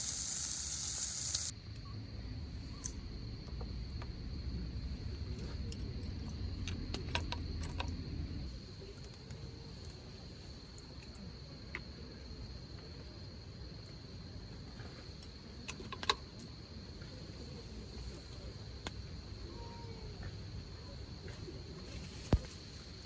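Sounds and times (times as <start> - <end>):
insects trilling: 0.0 - 23.0
low outdoor rumble: 1.5 - 15.6.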